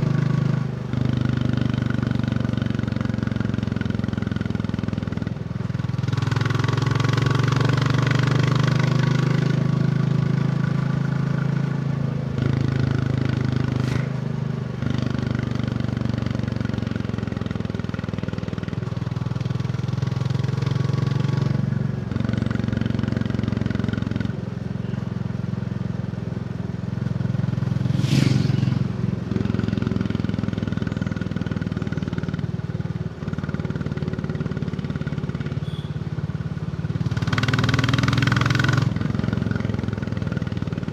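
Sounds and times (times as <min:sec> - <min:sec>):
motorcycle engine running: 0:00.0 - 0:40.9
brief loud rush: 0:27.8 - 0:29.0.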